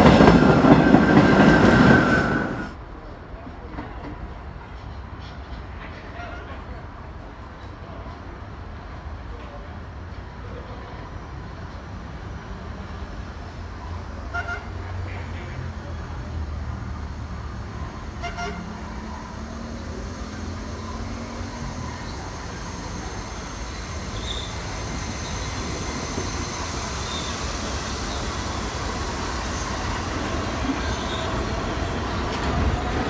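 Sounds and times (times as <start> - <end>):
subway train rumble: 0.0 - 33.0
train horn toots: 14.3 - 15.0, 18.1 - 18.9.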